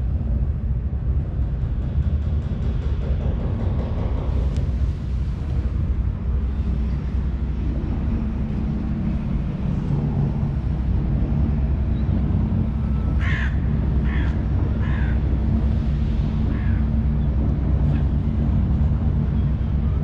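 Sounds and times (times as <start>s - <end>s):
steady low rumble: 0.0s - 20.0s
faint hum: 3.8s - 20.0s
harsh bird caws: 12.9s - 15.3s, 16.4s - 17.0s.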